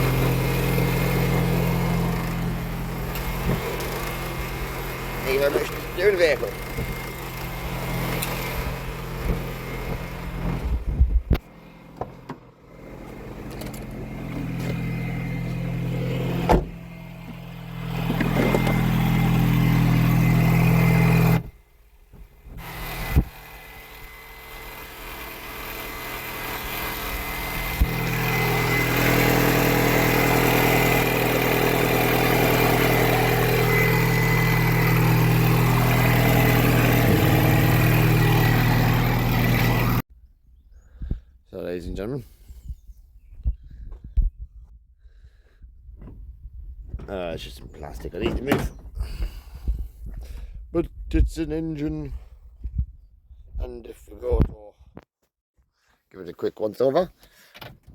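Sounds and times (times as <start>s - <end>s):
car engine hum: 0.0s - 40.1s, 46.9s - 49.7s.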